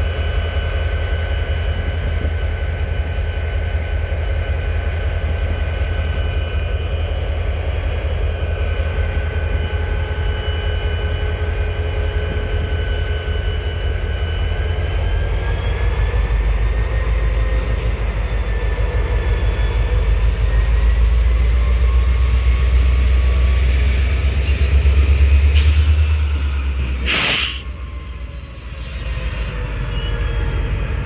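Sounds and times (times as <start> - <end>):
train deep rumble: 0.0 - 31.0
loud burst of hiss: 26.8 - 27.7.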